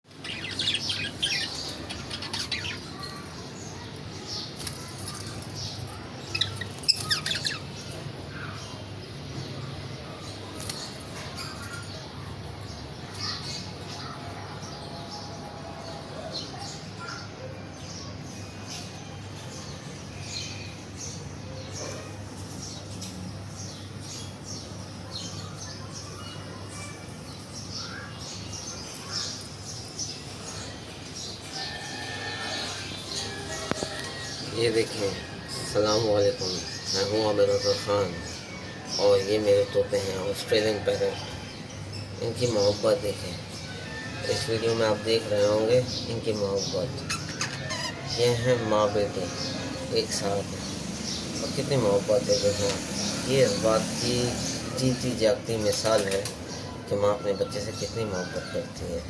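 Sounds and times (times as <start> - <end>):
budgerigars chirping: 0.1 - 3.1, 6.3 - 7.7, 42.5 - 56.3.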